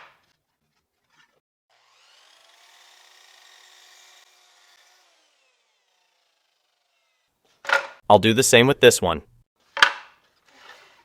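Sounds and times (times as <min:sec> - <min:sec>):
miter saw motor whine: 0:01.7 - 0:07.3.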